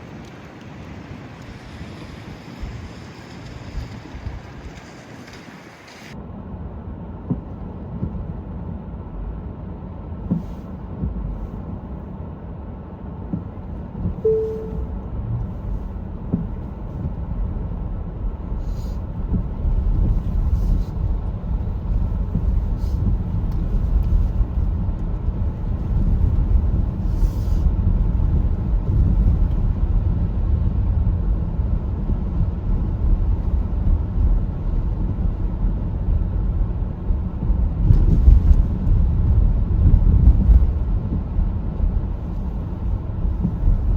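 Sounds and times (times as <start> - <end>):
brief tone: 14.2 - 15.1.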